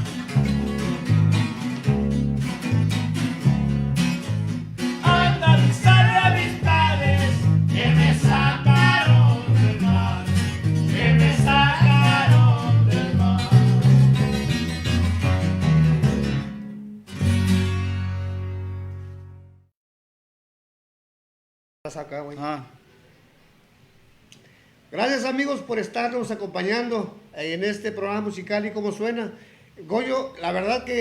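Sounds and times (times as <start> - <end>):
heavy bouncing bass line: 0.0 - 18.5
guitars: 0.0 - 19.6
person singing: 5.0 - 14.0.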